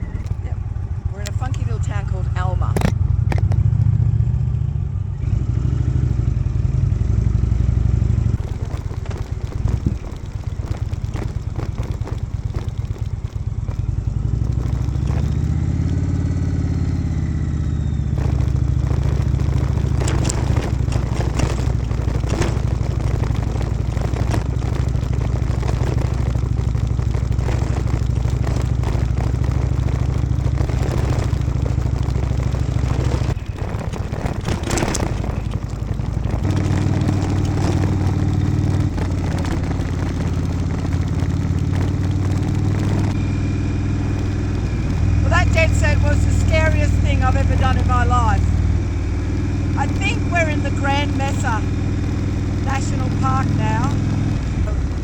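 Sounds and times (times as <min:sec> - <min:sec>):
motorcycle engine rumble: 0:00.0 - 0:55.0
wind buffeting microphone: 0:04.9 - 0:55.0.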